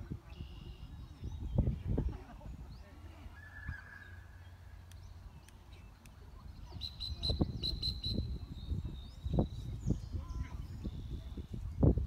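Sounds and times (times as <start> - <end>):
wind rumbling on microphone: 0.0 - 4.2, 5.0 - 12.0
bird chirping: 2.7 - 11.9.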